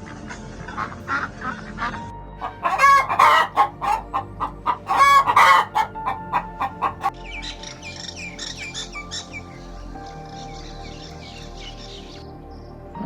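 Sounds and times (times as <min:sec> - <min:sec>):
chickens clucking: 0:00.8 - 0:07.2
chicken squawks: 0:02.4 - 0:07.2.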